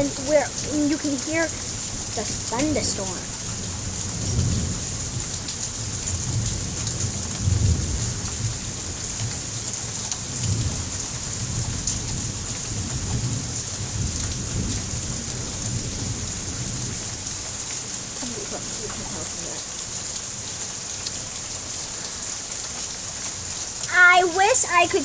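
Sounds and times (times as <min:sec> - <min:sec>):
thunder rumbling: 0:00.0 - 0:09.0, 0:18.0 - 0:19.8
heavy rain pouring: 0:00.0 - 0:25.0.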